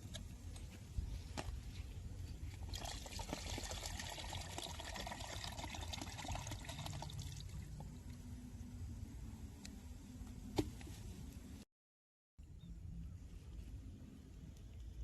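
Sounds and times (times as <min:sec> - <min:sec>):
liquid pouring into container: 0:02.6 - 0:07.7.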